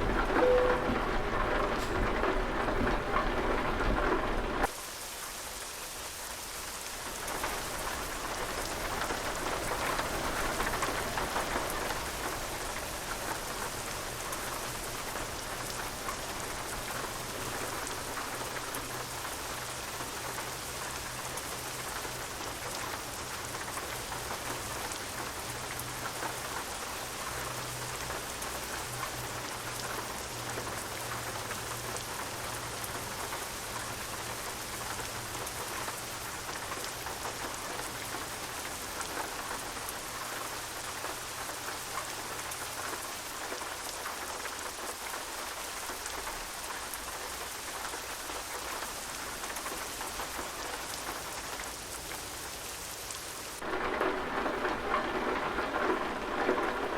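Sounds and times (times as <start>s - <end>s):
rain falling: 0.0s - 56.9s.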